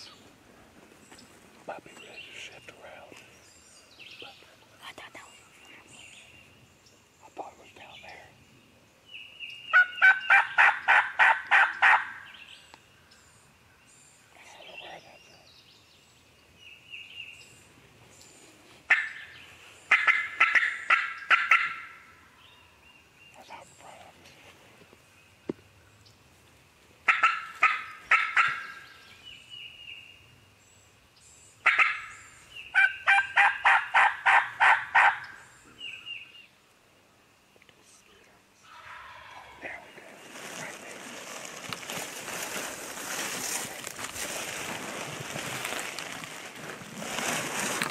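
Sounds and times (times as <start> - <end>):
turkey calling: 9.7 - 12.3, 18.9 - 22.1, 27.1 - 28.9, 31.6 - 36.0, 38.6 - 40.6
faint short turkey calls: 27.1 - 28.8, 38.6 - 39.9.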